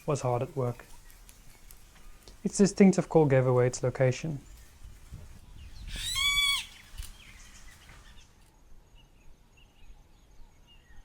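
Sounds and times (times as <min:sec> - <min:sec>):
woodpecker calling: 0:05.5 - 0:08.4.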